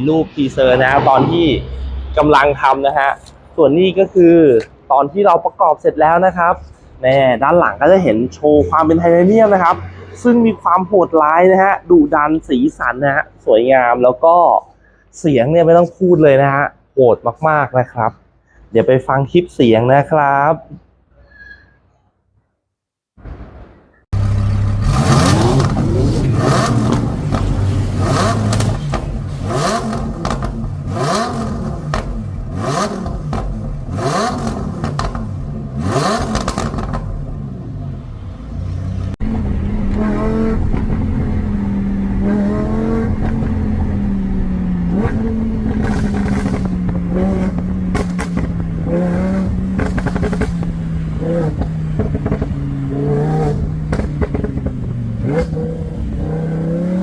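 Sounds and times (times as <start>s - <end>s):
car engine revving: 0.0s - 4.3s, 24.2s - 57.0s
exhaust crackles and pops: 24.1s - 37.4s, 43.0s - 50.9s, 51.5s - 52.6s, 53.8s - 55.5s.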